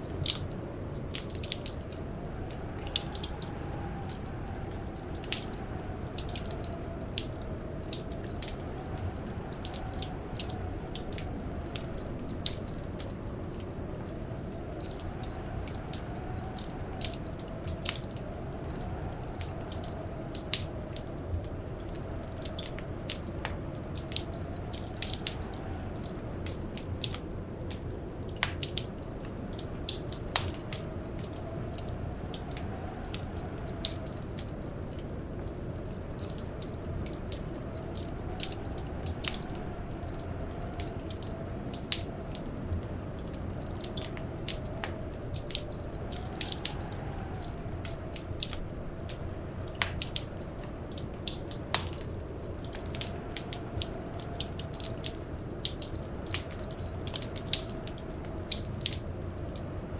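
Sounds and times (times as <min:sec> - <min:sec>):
low fire rumble: 0:00.0 - 0:59.9
wood fire crackling: 0:00.0 - 0:59.9.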